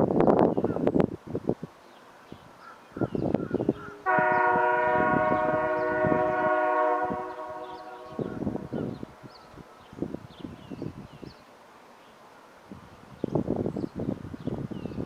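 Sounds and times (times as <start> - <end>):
locomotive air horn: 4.0 - 9.0.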